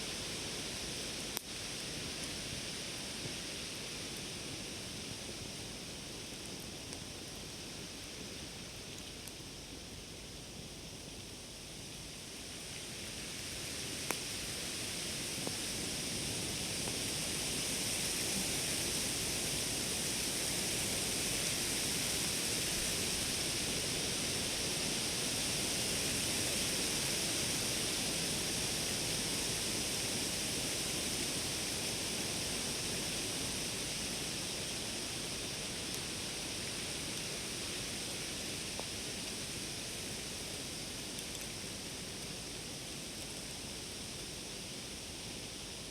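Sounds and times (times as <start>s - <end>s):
campfire rushing hiss: 0.0s - 45.9s
faint fire pops: 13.9s - 14.5s.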